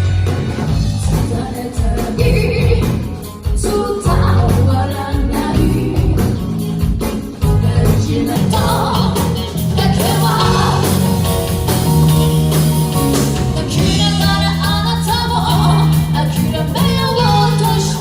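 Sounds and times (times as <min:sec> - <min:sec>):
live rock band playing: 0:00.0 - 0:18.0
person singing: 0:07.4 - 0:11.2, 0:13.5 - 0:18.0.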